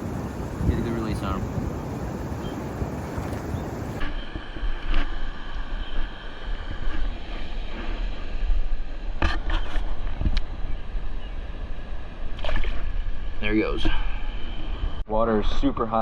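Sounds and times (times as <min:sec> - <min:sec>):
water rushing over a dam: 0:00.0 - 0:04.0
wind buffeting microphone: 0:00.0 - 0:15.0.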